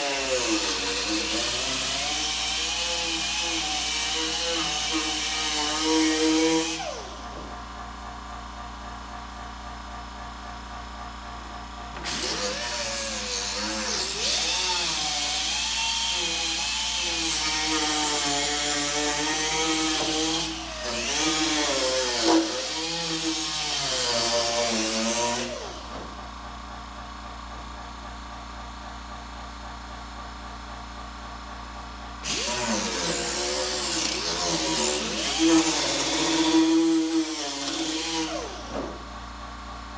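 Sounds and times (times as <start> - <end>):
handheld power tool cutting: 0.0 - 7.3, 12.0 - 25.9, 32.2 - 39.0.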